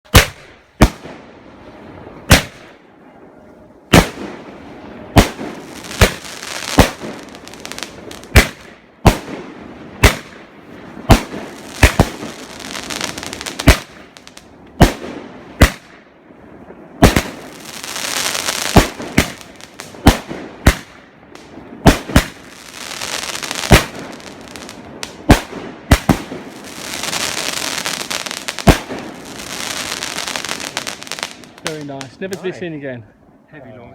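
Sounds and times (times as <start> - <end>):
firework crackle: 0.1 - 2.8, 3.9 - 32.6
firework launches banging: 5.1 - 16.0.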